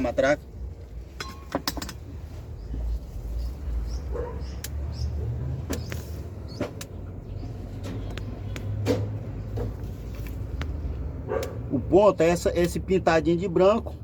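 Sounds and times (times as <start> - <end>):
metallic clicks of tools on engine: 1.2 - 2.1, 5.6 - 7.0, 12.5 - 12.8.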